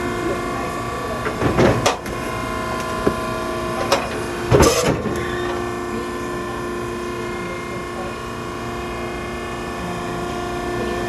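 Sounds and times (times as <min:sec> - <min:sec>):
hydraulic power unit humming: 0:00.0 - 0:11.0
loud metal clank: 0:03.9 - 0:05.2.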